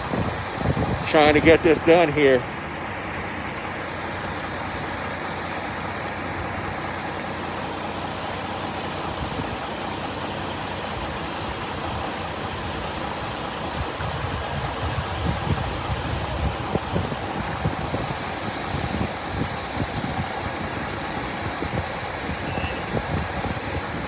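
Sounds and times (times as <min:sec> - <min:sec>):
wind buffeting microphone: 0:00.0 - 0:02.6, 0:10.9 - 0:24.0
water gushing from hydrant: 0:00.0 - 0:24.0.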